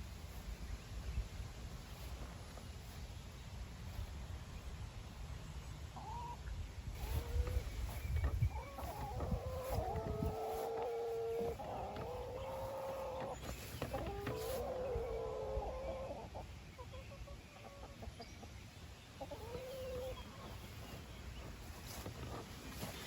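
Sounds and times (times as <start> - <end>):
hens clucking: 5.8 - 23.0
hens calling: 5.9 - 18.1, 19.2 - 23.0.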